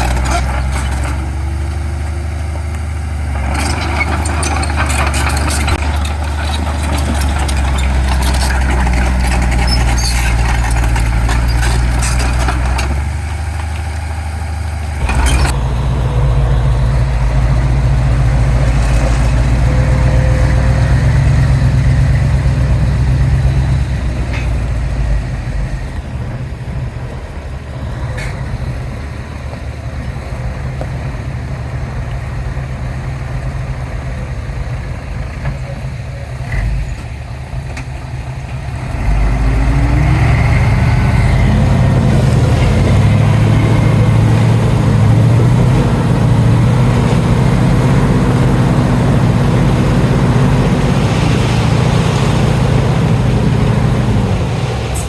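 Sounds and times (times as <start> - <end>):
heavy diesel engines running: 0.0 - 55.0.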